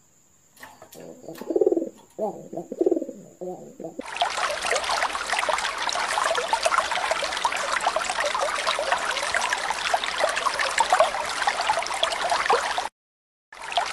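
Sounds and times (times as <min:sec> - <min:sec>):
fish splashing at water surface: 0:04.0 - 0:10.4.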